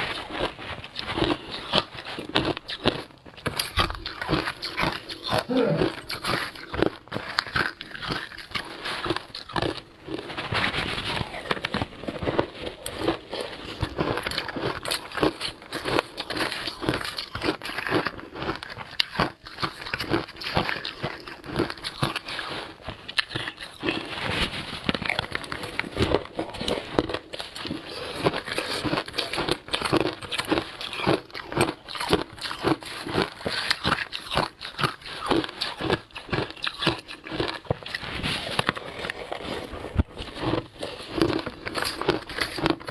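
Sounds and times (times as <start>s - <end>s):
crunching and chewing ice: 0.0s - 42.9s.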